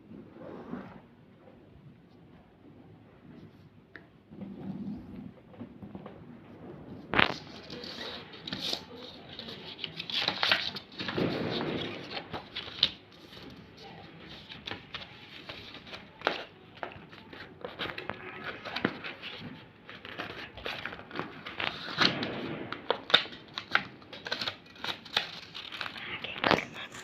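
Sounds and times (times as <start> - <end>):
paper crinkling and folding: 7.0 - 27.0.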